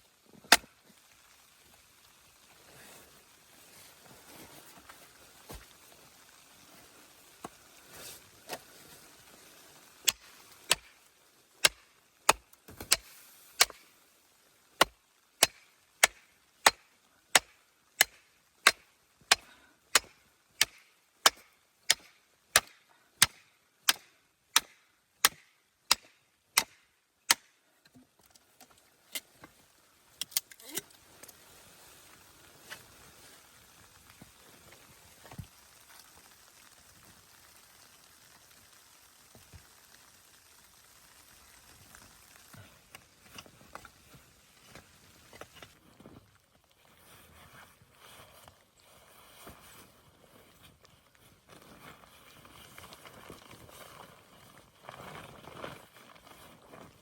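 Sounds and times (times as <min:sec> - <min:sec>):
sharp chopping strikes: 0:17.4 - 0:27.5.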